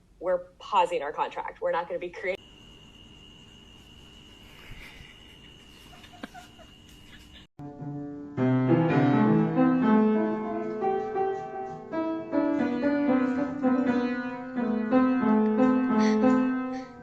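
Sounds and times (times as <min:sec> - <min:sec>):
piano melody over chords: 0:07.6 - 0:17.0.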